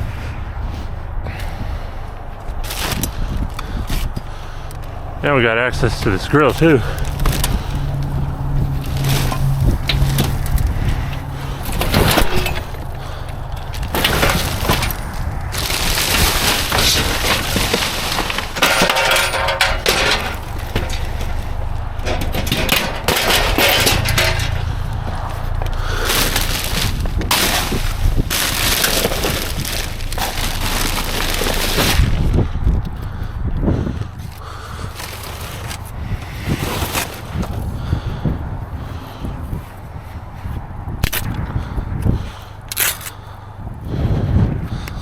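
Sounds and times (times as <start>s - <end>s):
low steady hum: 0.0s - 41.2s
junk crashing in metal dumpster: 5.7s - 32.5s.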